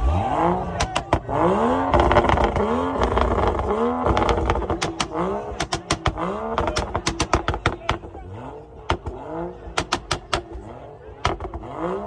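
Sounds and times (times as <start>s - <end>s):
car engine revving: 0.0s - 12.0s
sharp cracks: 0.7s - 8.1s, 8.9s - 10.6s.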